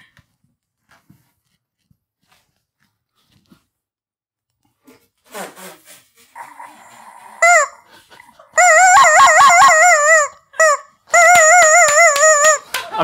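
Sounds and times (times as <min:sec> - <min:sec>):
rubber chicken squawking: 0:06.4 - 0:07.9, 0:08.6 - 0:12.6.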